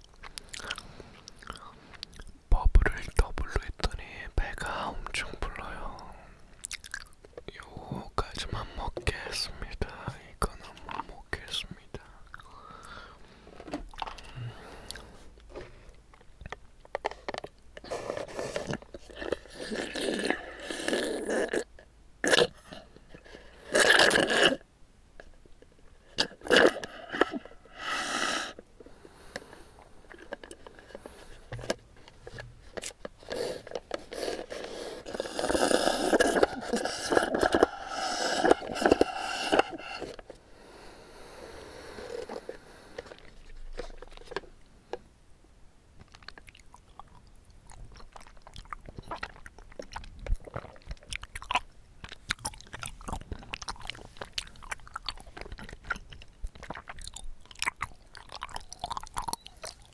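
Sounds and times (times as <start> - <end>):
chewing tapioca pearls: 0.0 - 3.2, 5.0 - 7.7, 10.6 - 11.2, 13.9 - 27.7, 32.7 - 40.3, 46.0 - 59.9
sucking through a straw: 17.8 - 22.6, 23.5 - 24.6, 26.2 - 28.6, 33.2 - 40.3
small clicks and scrapes: 29.3 - 35.2.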